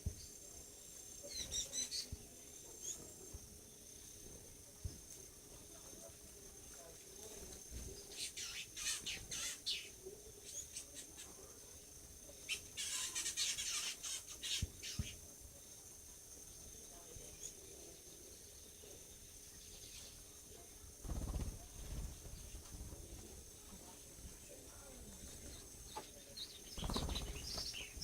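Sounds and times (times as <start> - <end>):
birds chirping: 7.9 - 11.4, 12.2 - 15.3, 16.6 - 28.0.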